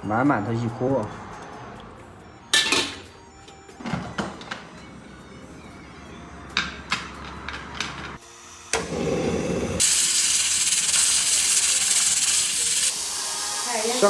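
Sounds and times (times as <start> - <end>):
pressure cooker steam hiss: 8.2 - 14.0.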